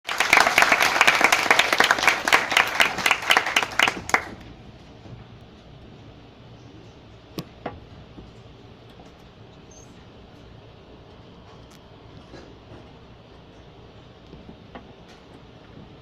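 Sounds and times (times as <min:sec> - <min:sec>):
audience applauding: 0:00.0 - 0:04.5
hum of large hall: 0:00.0 - 0:16.0.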